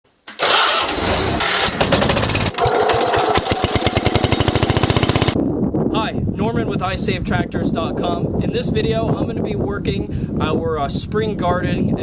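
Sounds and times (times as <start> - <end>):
garden tractor engine running: 0.4 - 5.4.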